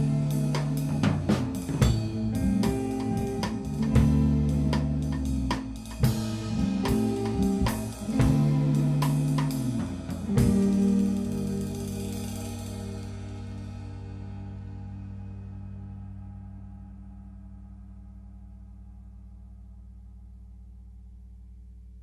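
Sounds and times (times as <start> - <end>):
instrumental rock band playing: 0.0 - 15.0.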